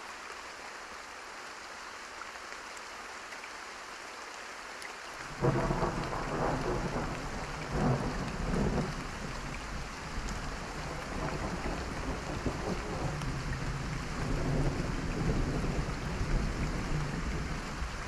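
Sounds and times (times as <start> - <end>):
steady rain falling: 0.0 - 18.0
thunder rumbling: 5.3 - 18.0.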